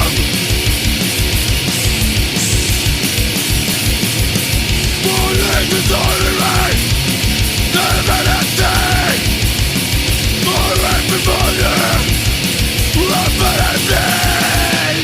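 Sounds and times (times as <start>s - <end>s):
fast drumbeat: 0.0s - 15.0s
heavily distorted guitars: 0.0s - 15.0s.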